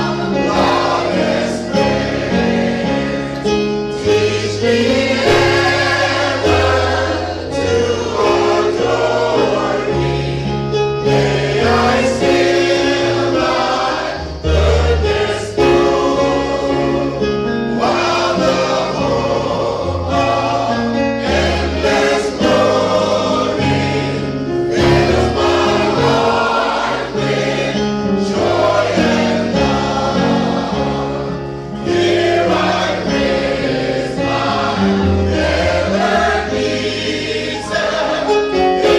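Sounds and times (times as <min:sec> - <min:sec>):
gospel choir singing: 0:00.0 - 0:38.9
instrumental accompaniment with bass: 0:00.0 - 0:38.9.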